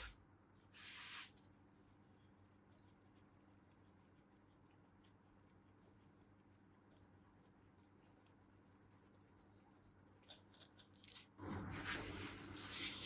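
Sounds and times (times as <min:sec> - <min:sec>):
small metal parts clinking: 0:10.2 - 0:11.7.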